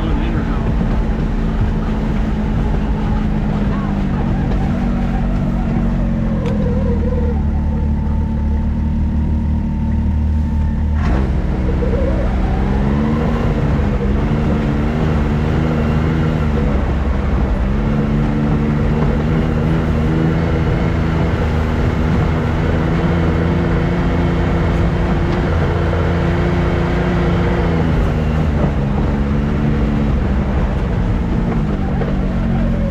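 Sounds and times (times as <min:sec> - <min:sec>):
off-road vehicle engine revving: 0:00.0 - 0:32.9.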